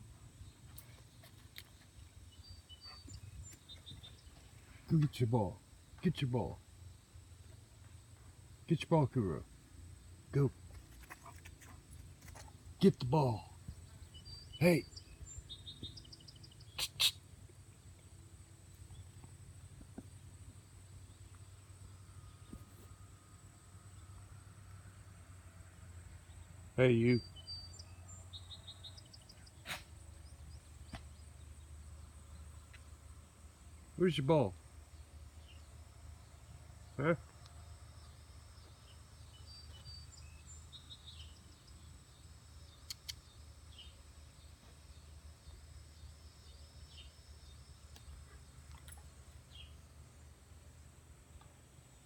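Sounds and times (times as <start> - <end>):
low steady background hum: 0.0 - 52.0
short bird chirps: 14.2 - 17.2, 42.7 - 43.9
sharp clicks: 42.8 - 43.2.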